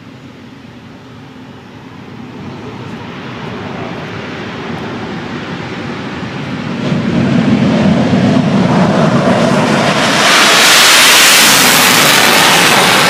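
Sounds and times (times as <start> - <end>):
jet engines at high power: 0.0 - 13.0.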